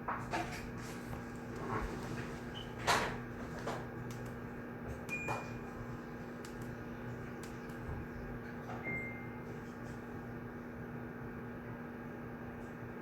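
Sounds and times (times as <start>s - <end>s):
steady low hum: 0.0s - 13.0s
small clicks and knocks at desks: 2.8s - 5.5s, 6.4s - 6.8s, 7.4s - 8.0s.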